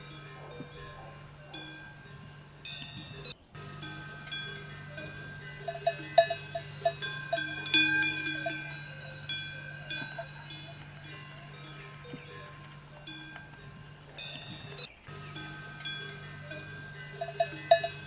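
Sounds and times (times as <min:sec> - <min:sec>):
metal bells clanking: 0:00.0 - 0:18.0
steady low hum: 0:00.0 - 0:18.0.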